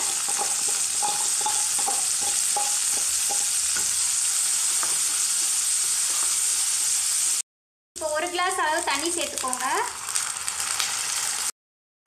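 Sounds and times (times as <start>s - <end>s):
wooden spatula scraping and stirring: 0.0s - 4.0s, 4.6s - 6.5s
lentils sizzling in hot oil: 0.0s - 7.4s, 8.0s - 11.5s.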